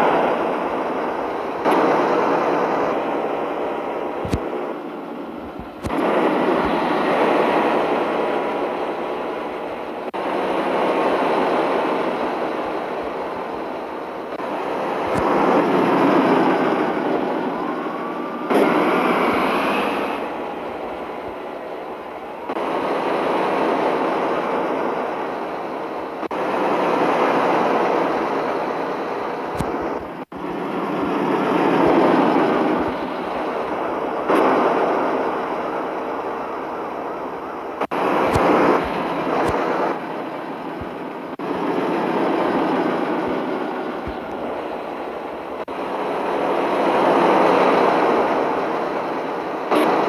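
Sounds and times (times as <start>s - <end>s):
truck travel rushing noise: 0.0s - 50.0s.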